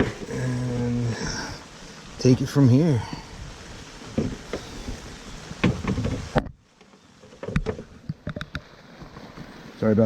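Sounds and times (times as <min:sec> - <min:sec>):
rain hiss: 0:00.0 - 0:10.0.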